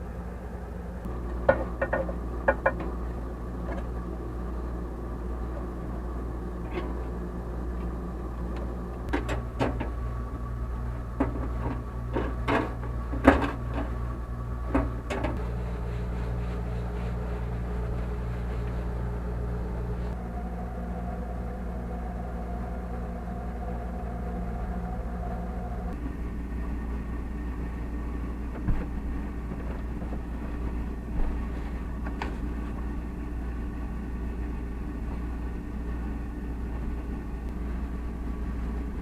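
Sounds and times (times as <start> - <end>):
low mechanical hum: 0.0 - 39.0
knocks and clicks: 1.4 - 3.0.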